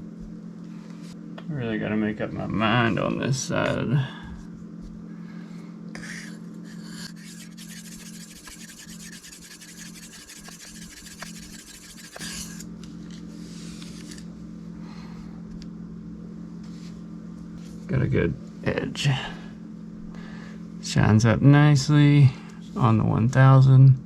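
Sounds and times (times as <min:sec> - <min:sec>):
knife scraping on whetstone: 0:06.7 - 0:12.7.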